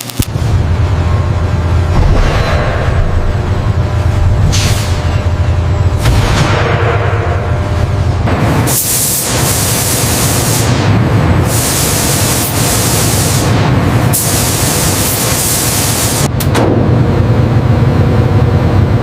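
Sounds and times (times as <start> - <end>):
steady low rumble: 0.0 - 19.0
loud rushing hiss: 8.3 - 16.3.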